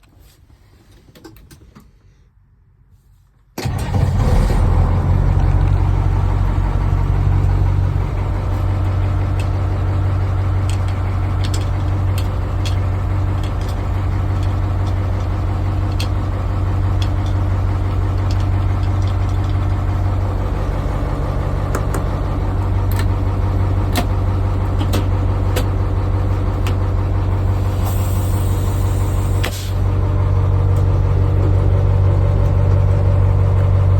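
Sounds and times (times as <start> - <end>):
truck engine starting and idling: 3.6 - 33.9
air brake hiss: 27.5 - 29.8.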